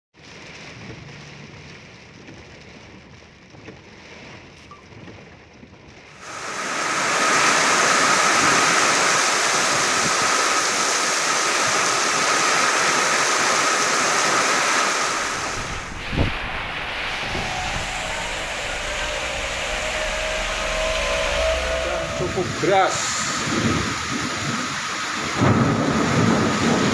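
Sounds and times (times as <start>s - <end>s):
heavy rain pouring: 0.2s - 26.9s
strong wind: 6.2s - 26.9s.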